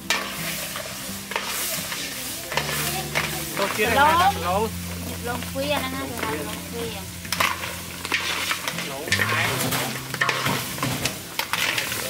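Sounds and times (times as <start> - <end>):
food sizzling in a wok: 0.0 - 12.0
spatula scraping and clattering: 0.1 - 4.0, 7.2 - 12.0.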